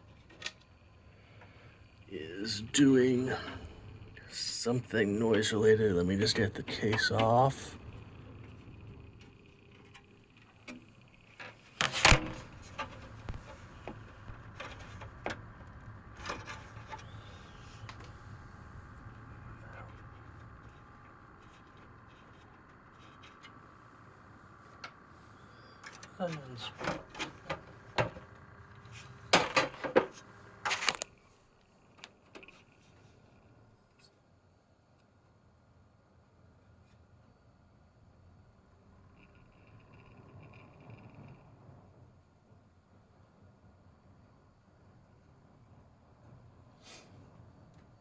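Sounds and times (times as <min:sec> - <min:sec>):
computer fan hum: 0:00.0 - 0:48.0
clicks: 0:06.2 - 0:31.2
computer panel rubbing and knocking: 0:11.6 - 0:23.7
clicks and knocks on computer case: 0:11.8 - 0:15.4, 0:29.3 - 0:31.0.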